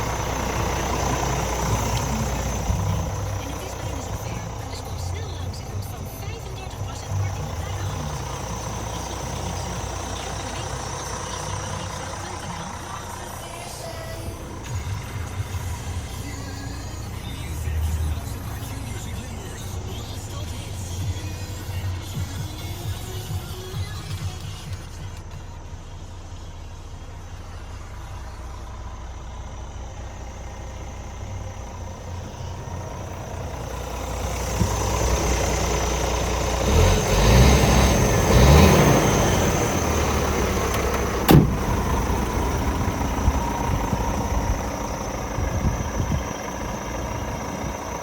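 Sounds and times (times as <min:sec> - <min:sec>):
diesel truck engine running: 0:00.0 - 0:48.0
sharp click: 0:40.8 - 0:41.7.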